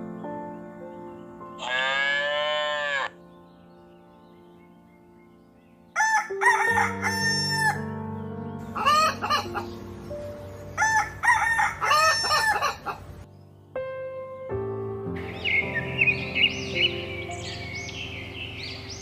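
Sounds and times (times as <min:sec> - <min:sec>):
background music: 0:00.0 - 0:19.0
rooster crowing: 0:06.0 - 0:07.8, 0:10.8 - 0:13.0.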